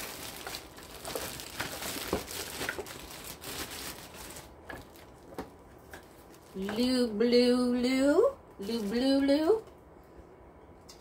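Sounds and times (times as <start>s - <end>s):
packaging crinkling: 0.0s - 6.6s.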